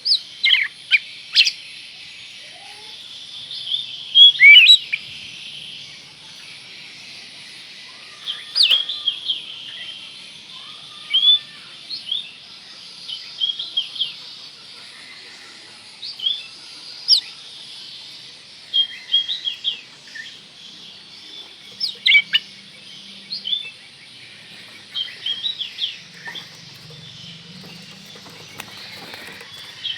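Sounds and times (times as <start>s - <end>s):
bird singing whistled chirps: 0.0s - 1.6s, 3.7s - 5.1s, 8.2s - 10.0s, 16.1s - 17.4s, 18.6s - 29.9s.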